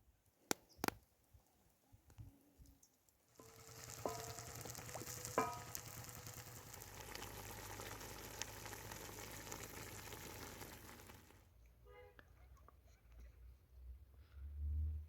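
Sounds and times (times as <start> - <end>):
food sizzling in a hot pan: 3.3 - 11.4.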